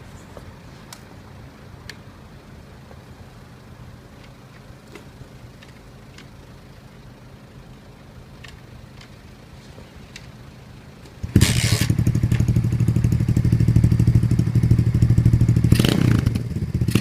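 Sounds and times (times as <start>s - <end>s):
motorcycle engine idling: 10.3s - 17.0s.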